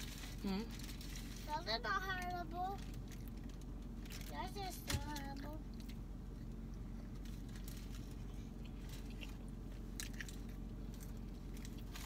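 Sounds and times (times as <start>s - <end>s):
steady low hum: 0.0s - 12.0s
person chewing: 5.7s - 12.0s.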